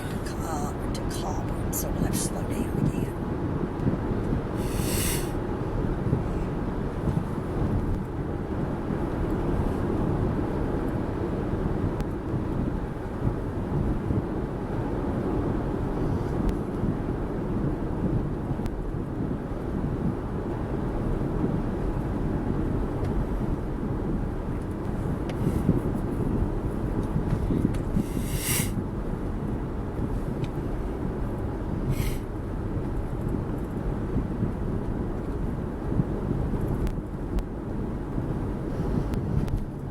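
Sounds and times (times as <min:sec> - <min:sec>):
car road and wind noise: 0:00.0 - 0:39.9.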